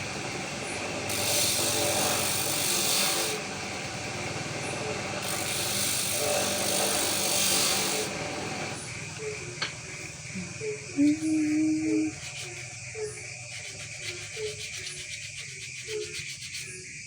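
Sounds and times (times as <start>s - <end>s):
wood sanding rasp: 1.0s - 3.5s, 4.9s - 8.8s, 13.4s - 16.8s
steady low hum: 8.1s - 16.0s.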